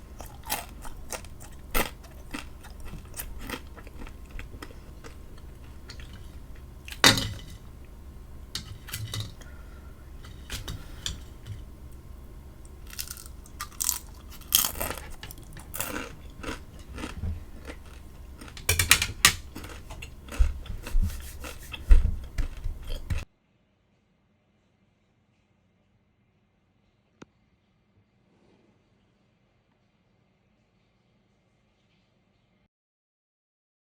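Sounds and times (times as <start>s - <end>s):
person chewing crunchy food: 0.0s - 23.2s.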